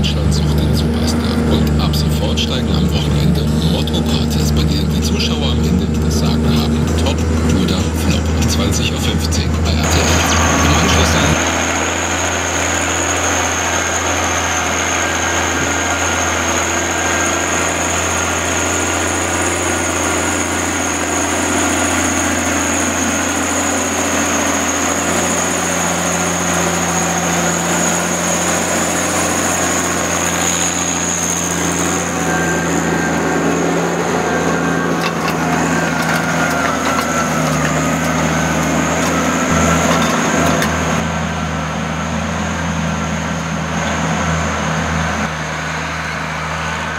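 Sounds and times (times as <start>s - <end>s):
diesel engine running: 0.0s - 46.9s
high-pitched whine: 0.0s - 46.9s.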